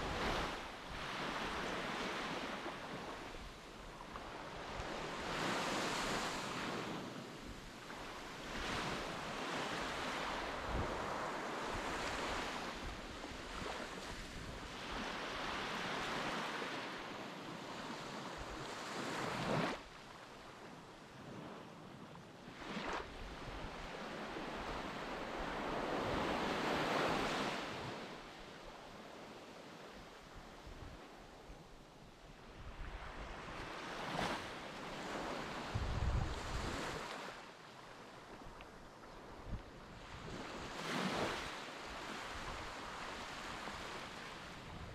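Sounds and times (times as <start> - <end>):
wind buffeting microphone: 35.7 - 37.0.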